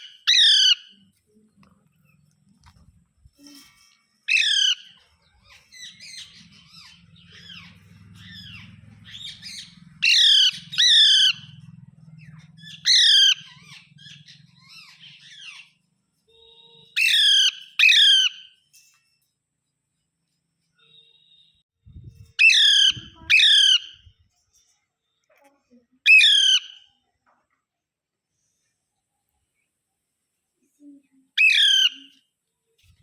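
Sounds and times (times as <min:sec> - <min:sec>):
parakeet chattering calls: 0:00.0 - 0:01.0, 0:04.3 - 0:15.7, 0:22.4 - 0:24.0, 0:26.1 - 0:26.8, 0:31.4 - 0:32.1
parakeet screeching: 0:00.0 - 0:01.0, 0:04.3 - 0:11.7, 0:12.6 - 0:15.7, 0:16.9 - 0:18.5, 0:22.4 - 0:24.0, 0:26.1 - 0:26.9, 0:31.4 - 0:32.1.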